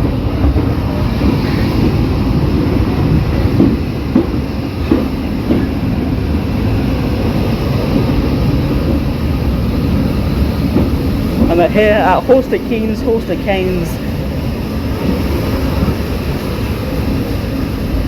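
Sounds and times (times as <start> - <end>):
rumble of wheels on rails: 0.0 - 18.0.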